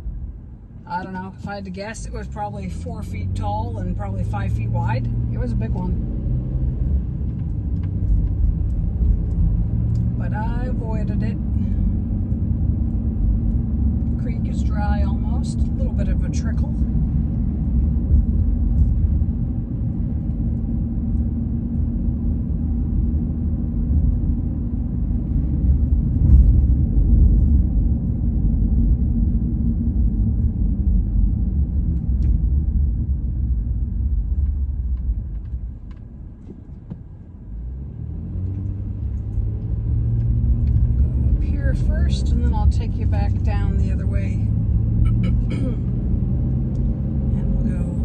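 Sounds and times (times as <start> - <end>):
road and engine rumble: 0.0 - 48.0.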